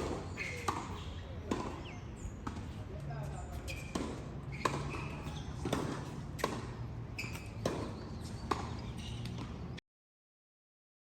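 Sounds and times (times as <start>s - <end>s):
short high squeaks: 0.3s - 1.2s, 7.1s - 7.6s.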